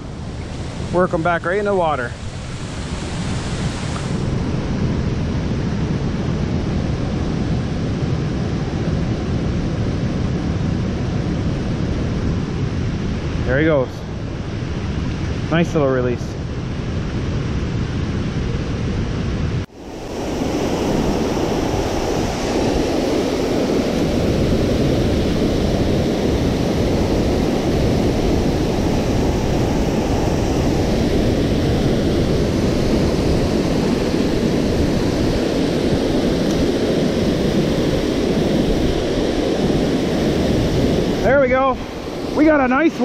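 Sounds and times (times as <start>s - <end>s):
waterfall roaring: 19.7s - 43.0s.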